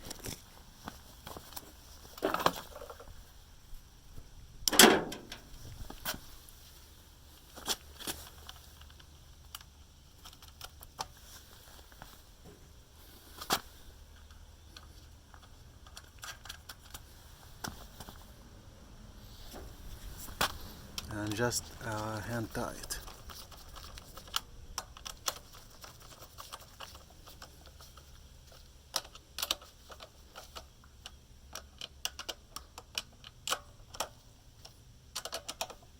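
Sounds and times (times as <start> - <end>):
metal clank: 4.7 - 5.5
wrench and fasteners clicking: 35.1 - 35.8.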